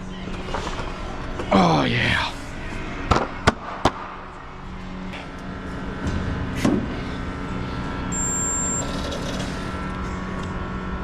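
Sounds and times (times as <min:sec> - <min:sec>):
spot welder electrical hum: 0:04.4 - 0:11.0.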